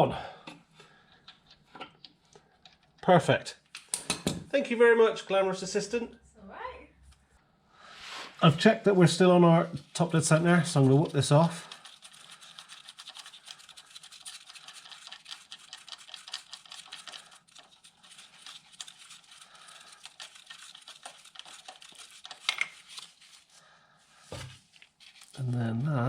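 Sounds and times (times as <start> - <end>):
tool scratching and clicking on metal: 10.0 - 23.1.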